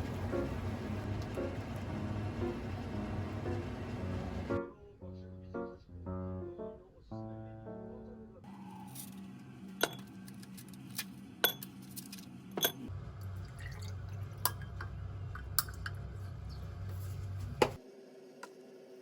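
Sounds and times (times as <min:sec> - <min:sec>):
low steady hum: 0:00.0 - 0:04.6
glass and dishware clinking: 0:09.8 - 0:10.1, 0:12.6 - 0:12.9.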